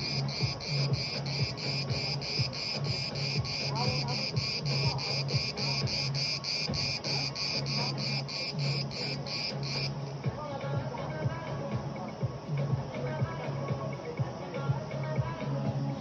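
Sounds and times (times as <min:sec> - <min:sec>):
cicada pulsing buzz: 0:00.0 - 0:16.0.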